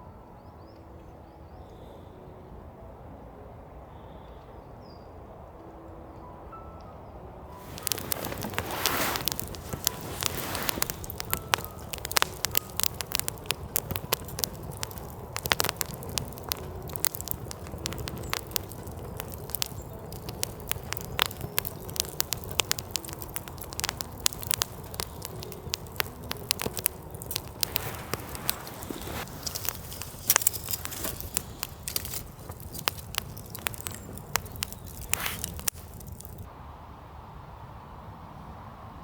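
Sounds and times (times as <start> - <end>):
campfire crackling and popping: 7.6 - 36.5.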